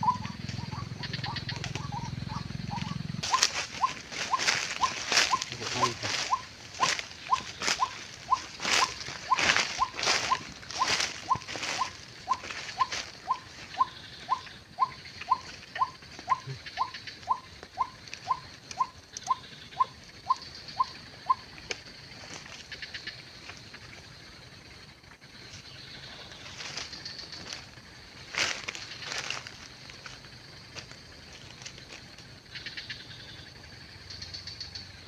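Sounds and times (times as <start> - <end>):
waterhen calling: 0.0 - 21.4.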